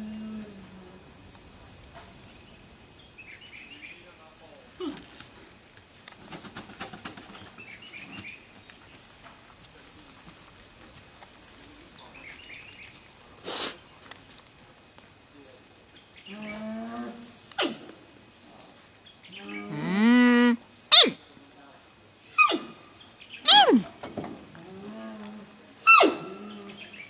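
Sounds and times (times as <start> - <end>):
panda bleating: 19.7 - 21.2, 23.5 - 23.8.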